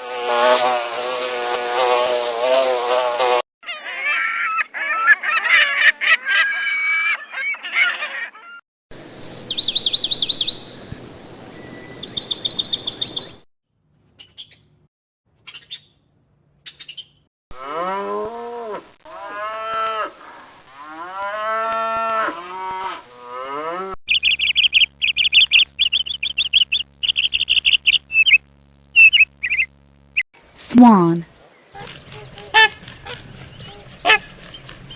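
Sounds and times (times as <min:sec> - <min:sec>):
cow mooing: 0:20.8 - 0:24.0
rapid high chirping: 0:24.1 - 0:30.2, 0:31.7 - 0:34.9.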